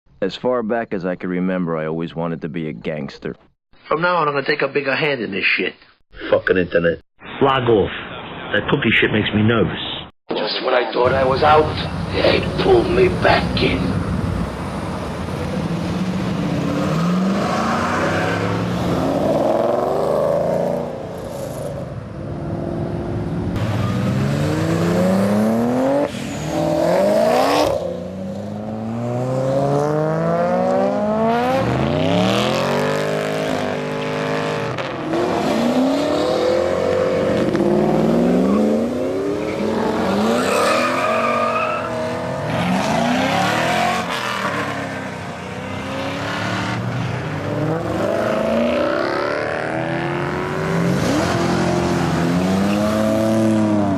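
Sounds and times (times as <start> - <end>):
car engines accelerating hard: 11.2 - 53.9.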